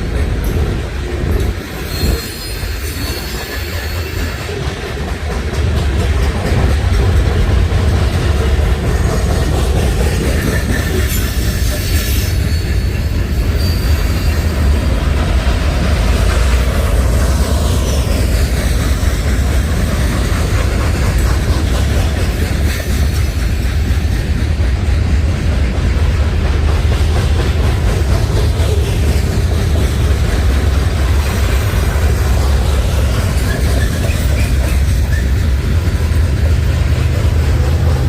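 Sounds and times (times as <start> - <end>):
freight train wheels rumbling: 0.0 - 38.0
high-pitched wheel squeals: 1.8 - 4.4, 11.1 - 14.8.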